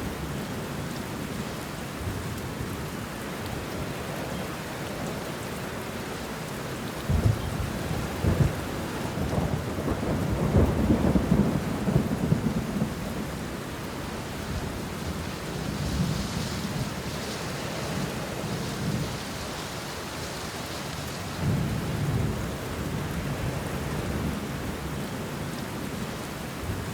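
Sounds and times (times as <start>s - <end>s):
rain falling on leaves: 0.0s - 26.9s
thunder claps and rumble: 7.0s - 19.8s, 21.3s - 25.0s.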